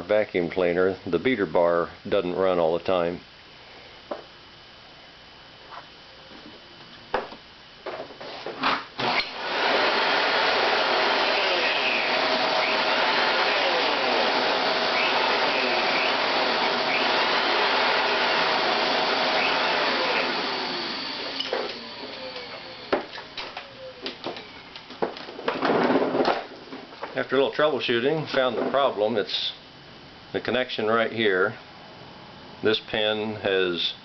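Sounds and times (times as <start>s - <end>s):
vacuum cleaner running: 8.3s - 24.6s.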